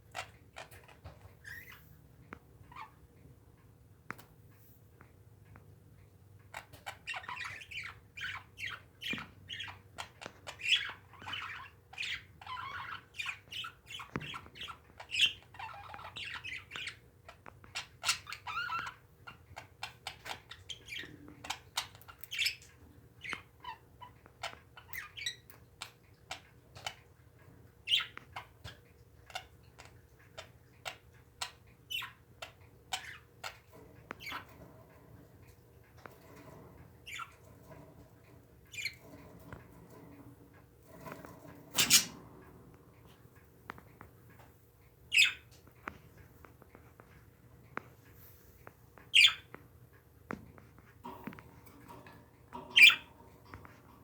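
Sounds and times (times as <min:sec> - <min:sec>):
parakeets chirping and squawking: 0:06.8 - 0:25.4, 0:37.1 - 0:37.8, 0:41.0 - 0:42.2, 0:45.1 - 0:45.5, 0:49.1 - 0:49.5, 0:51.0 - 0:53.9.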